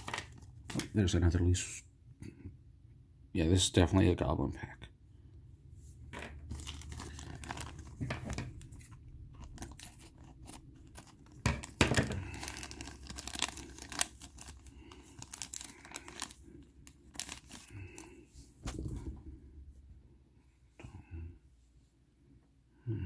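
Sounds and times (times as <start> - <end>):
plastic bags crinkling and tearing: 0.0 - 1.0, 6.3 - 18.8.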